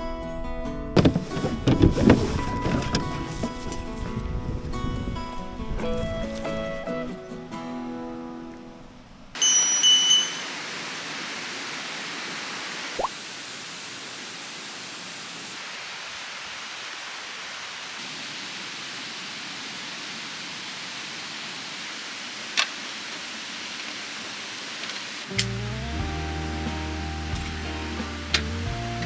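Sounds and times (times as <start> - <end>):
loud ringing sound: 9.4 - 10.8
mountain stream rushing: 9.4 - 29.0.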